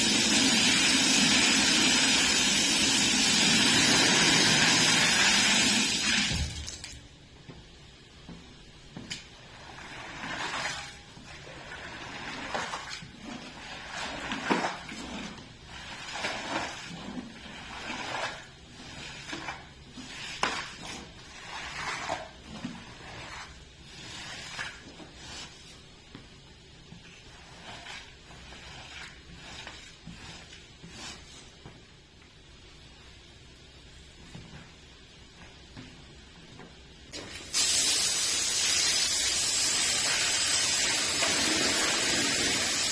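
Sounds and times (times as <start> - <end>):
cleaning tool swishing on wet rug: 9.4 - 26.0, 27.1 - 31.7.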